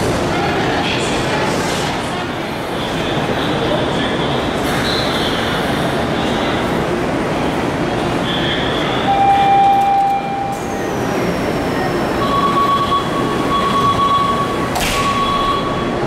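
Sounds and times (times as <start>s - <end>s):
brief tone: 9.1s - 10.7s, 12.2s - 16.0s
electronic warning tone: 12.2s - 16.0s.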